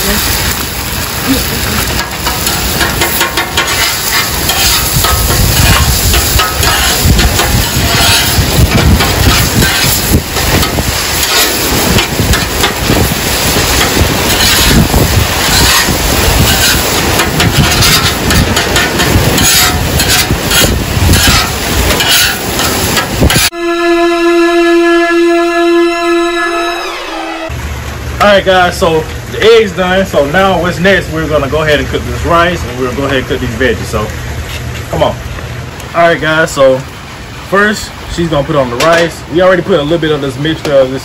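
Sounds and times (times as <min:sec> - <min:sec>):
eggs sizzling on griddle: 0:00.0 - 0:23.6
rushing noise with low rumble: 0:00.0 - 0:23.6
metal spatula scraping: 0:01.9 - 0:23.6.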